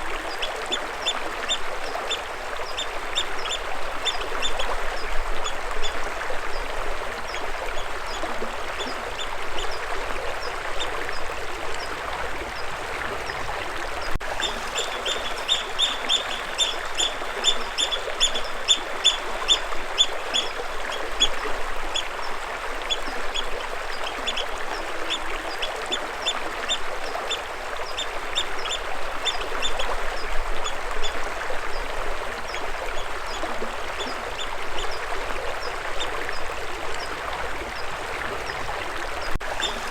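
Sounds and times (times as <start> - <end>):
stream water flowing: 0.0 - 39.9
bird chirping: 14.4 - 20.6.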